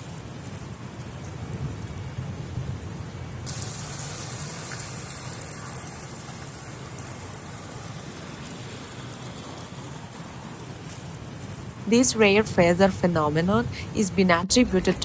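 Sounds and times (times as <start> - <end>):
hail falling hiss: 0.0 - 2.2, 3.4 - 14.1
low rumble: 13.4 - 15.0.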